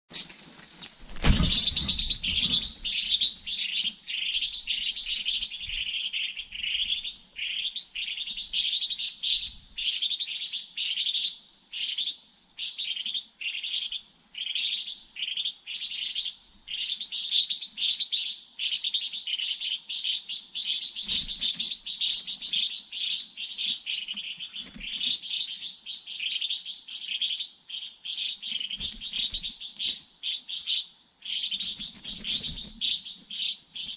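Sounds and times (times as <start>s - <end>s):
small birds chirping: 0.1s - 33.9s
loud low thump: 1.2s - 2.6s.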